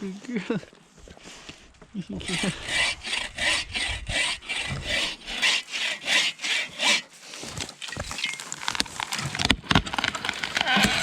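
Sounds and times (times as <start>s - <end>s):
hand saw cutting wood: 2.2s - 11.0s.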